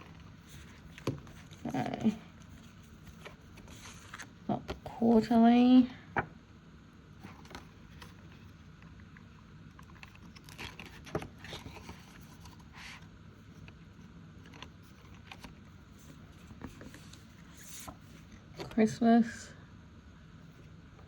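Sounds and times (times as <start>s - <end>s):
paper envelopes and cash rustling: 0.0s - 5.3s, 7.2s - 13.8s, 14.4s - 18.9s.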